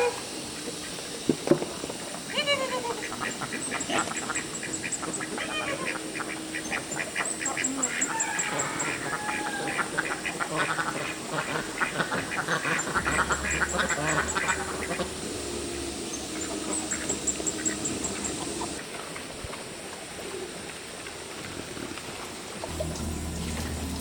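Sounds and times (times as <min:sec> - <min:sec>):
ducks quacking: 0:02.2 - 0:18.8.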